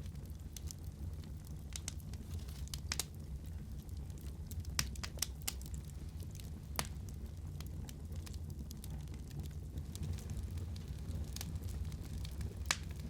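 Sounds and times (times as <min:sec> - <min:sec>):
fire popping and snapping: 0:00.0 - 0:13.0
wood fire crackling: 0:00.0 - 0:13.0.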